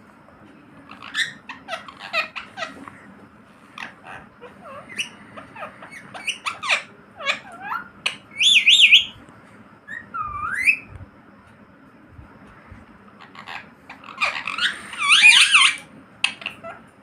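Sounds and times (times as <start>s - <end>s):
parrots chirping: 0.9s - 9.2s, 9.9s - 10.9s, 13.2s - 17.0s
parrot whistling: 3.8s - 9.2s, 9.9s - 10.9s, 13.2s - 16.8s.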